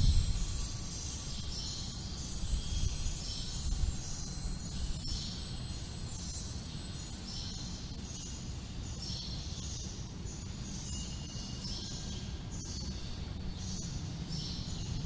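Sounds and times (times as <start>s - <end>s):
wind rumbling on microphone: 0.0s - 1.6s, 2.4s - 5.4s.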